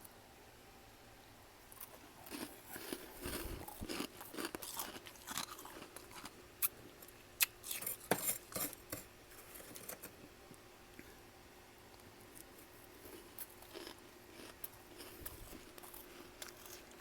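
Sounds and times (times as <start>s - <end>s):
chewing and crunching frost: 1.7s - 10.1s, 11.9s - 17.0s.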